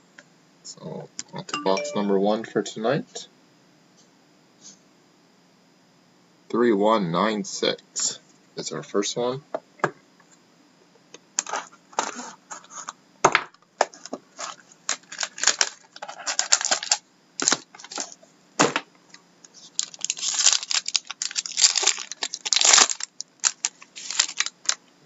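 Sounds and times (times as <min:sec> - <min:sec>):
packaging crinkling and tearing: 0:14.3 - 0:18.2, 0:19.6 - 0:24.9.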